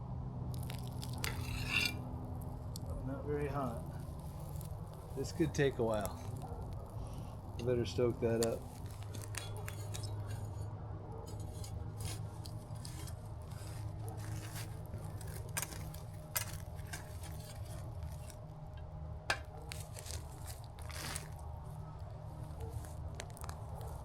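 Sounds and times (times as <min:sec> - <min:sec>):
coals crackling: 0:00.4 - 0:24.0
metal tool scraping coals: 0:00.5 - 0:02.8, 0:03.4 - 0:21.4.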